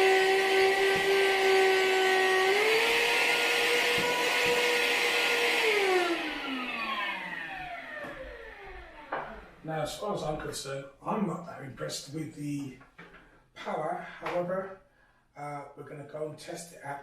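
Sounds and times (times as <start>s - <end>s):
handheld vacuum motor whine: 0.0s - 9.6s.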